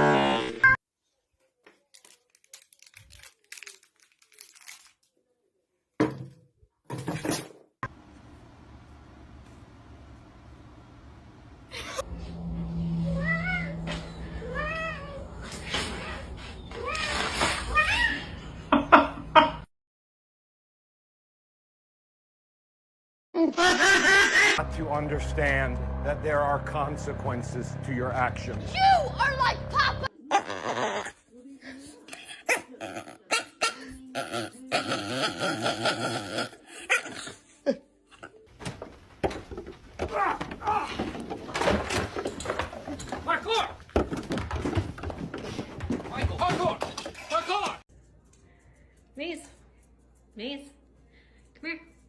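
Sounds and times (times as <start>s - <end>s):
low hum: 8.0s - 14.5s, 24.6s - 30.1s.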